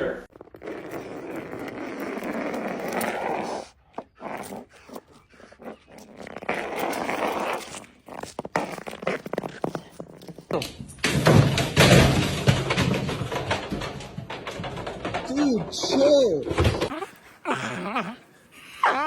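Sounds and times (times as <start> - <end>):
dog growling: 0.6 - 10.3, 16.6 - 19.0.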